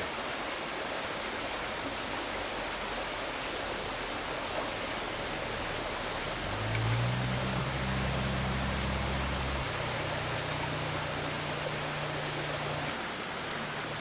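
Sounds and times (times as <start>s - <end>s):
creek water rushing: 0.0s - 14.0s
low steady hum: 3.9s - 14.0s.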